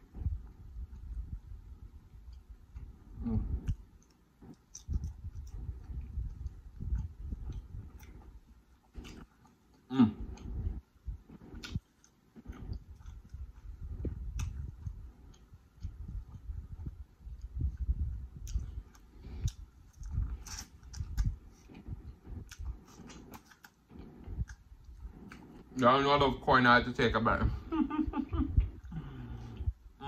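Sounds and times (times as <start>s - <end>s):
close chewing: 2.1s - 25.8s
wet mouth sounds: 2.7s - 25.8s.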